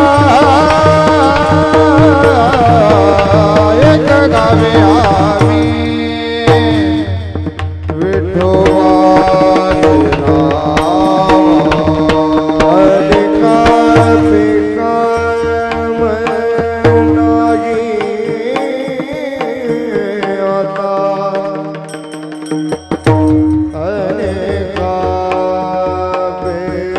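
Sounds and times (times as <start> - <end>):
tabla drumming: 0.0 - 26.9
gliding melodic line: 21.9 - 24.8.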